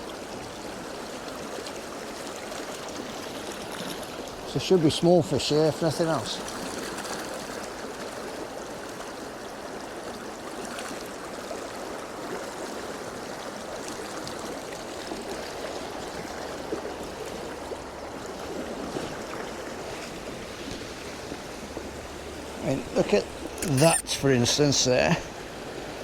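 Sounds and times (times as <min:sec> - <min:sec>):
stream water running over rocks: 0:00.1 - 0:26.0.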